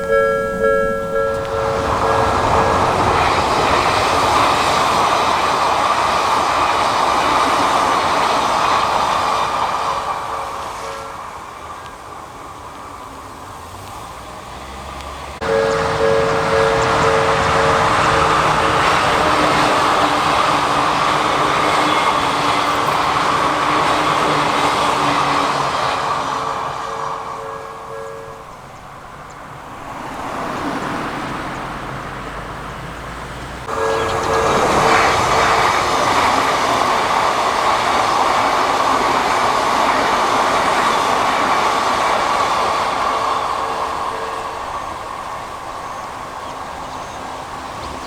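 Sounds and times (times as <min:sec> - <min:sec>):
level-crossing bell ringing: 0:00.0 - 0:05.2, 0:09.9 - 0:11.4, 0:15.4 - 0:28.8, 0:33.6 - 0:38.9, 0:41.6 - 0:46.3
electric train passing at speed: 0:00.0 - 0:48.0.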